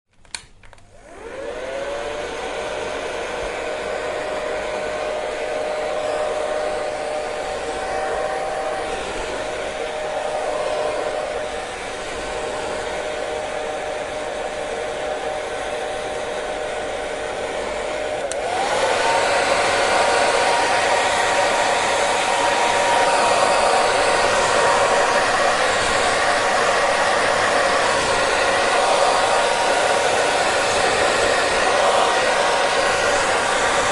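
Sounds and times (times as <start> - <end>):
hair dryer switch click: 0.2 - 0.9, 18.1 - 18.8
hair dryer running: 0.3 - 33.9.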